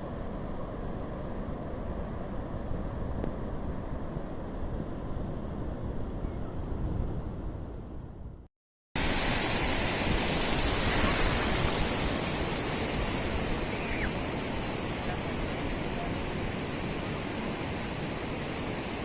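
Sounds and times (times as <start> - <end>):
sea surf on a beach: 9.0 - 19.0.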